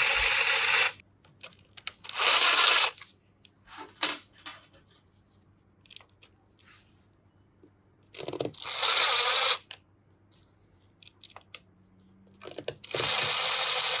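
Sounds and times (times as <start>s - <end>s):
power tool driving bolts: 12.8s - 14.0s.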